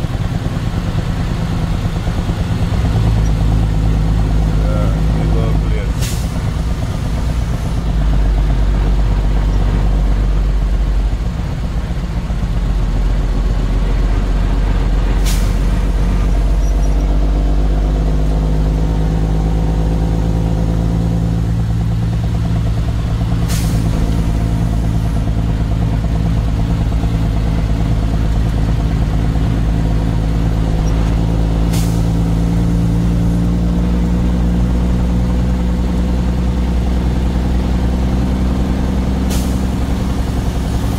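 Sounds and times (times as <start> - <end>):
truck engine running: 0.0 - 40.9.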